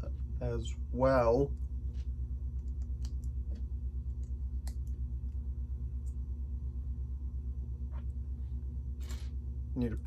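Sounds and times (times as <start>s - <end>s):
low pulsing hum: 0.0s - 10.0s.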